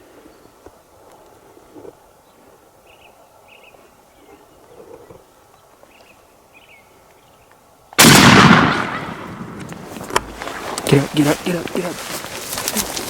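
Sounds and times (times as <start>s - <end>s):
loud shotgun shot echoing: 8.0s - 10.3s.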